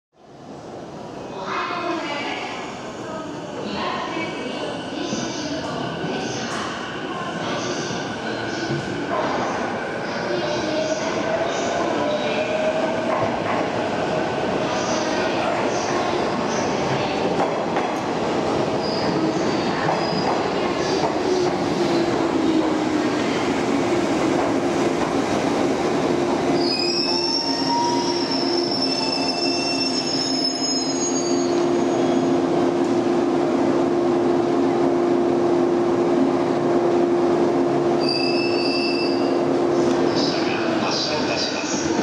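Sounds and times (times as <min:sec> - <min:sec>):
train rumbling: 0:03.5 - 0:30.4
train brakes squealing: 0:26.6 - 0:32.3, 0:38.0 - 0:39.4.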